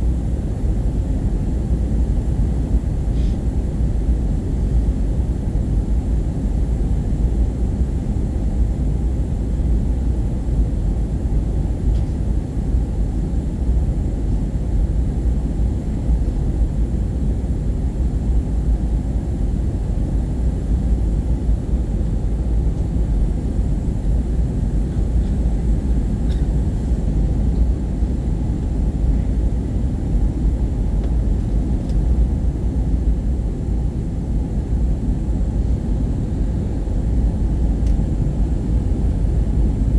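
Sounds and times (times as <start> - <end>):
airplane cabin rumble: 10.4 - 39.9.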